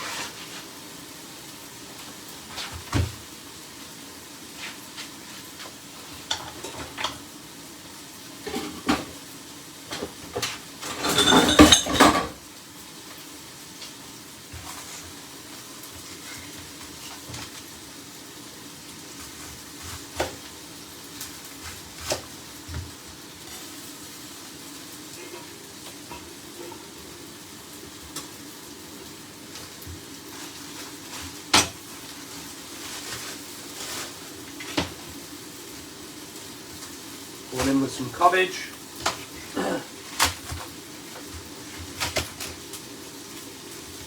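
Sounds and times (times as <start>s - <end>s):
chicken sizzling in a pan: 0.0s - 44.0s
kitchen utensils clicking and knocking: 10.8s - 12.4s.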